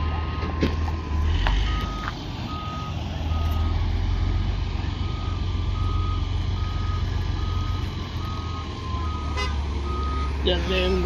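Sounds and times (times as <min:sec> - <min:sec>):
diesel engine rumbling: 0:00.0 - 0:11.0
backup alarm beeping: 0:05.0 - 0:11.0.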